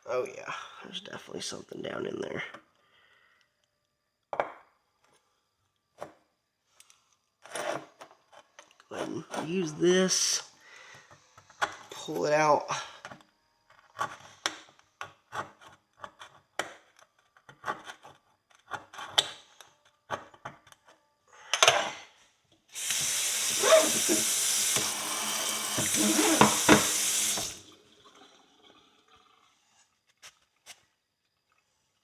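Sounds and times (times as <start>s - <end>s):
tap water running into sink: 22.8s - 29.5s.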